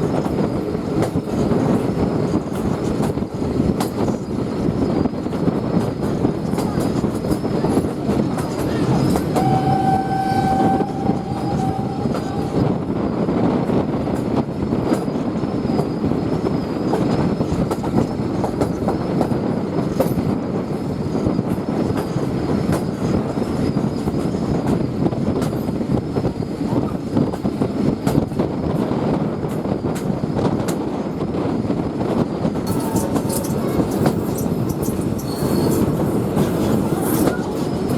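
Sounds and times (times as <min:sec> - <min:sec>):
train wheels rumbling on rails: 0:00.0 - 0:37.9
steam locomotive whistle: 0:09.3 - 0:12.7, 0:32.7 - 0:36.1.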